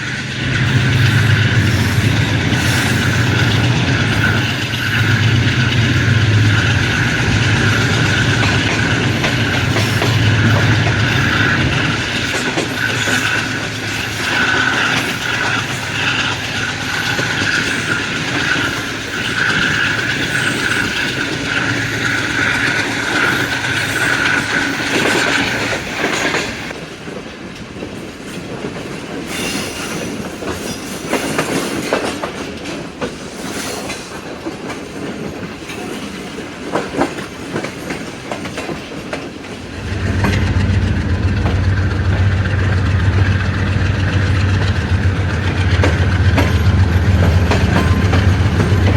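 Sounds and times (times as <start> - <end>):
train wheels clicking over rail joints: 0.1 - 48.9
deep low drone: 39.6 - 48.9
rattling: 39.6 - 48.9
steady high whine: 39.6 - 48.9.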